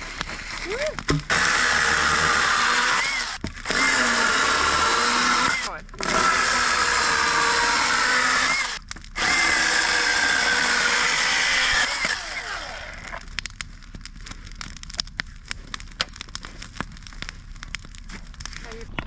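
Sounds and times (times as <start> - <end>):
campfire crackling and popping: 0.0 - 19.0
small motor running: 1.3 - 13.2.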